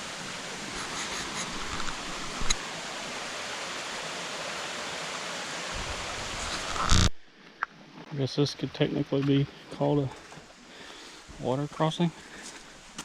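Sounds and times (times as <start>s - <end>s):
water rushing over rocks: 0.0s - 7.1s.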